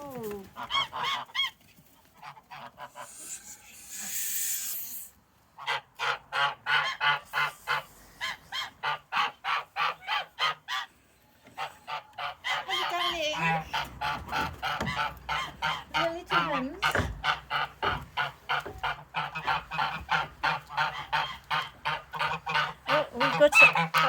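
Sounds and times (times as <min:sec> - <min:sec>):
geese honking: 0:02.2 - 0:04.1, 0:05.6 - 0:24.0
breathy hiss: 0:02.9 - 0:05.2.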